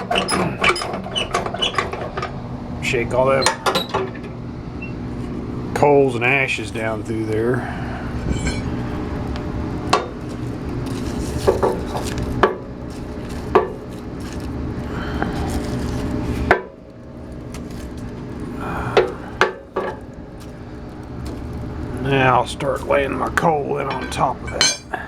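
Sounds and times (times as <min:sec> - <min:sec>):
furnace grate rattling: 0:05.8 - 0:25.0.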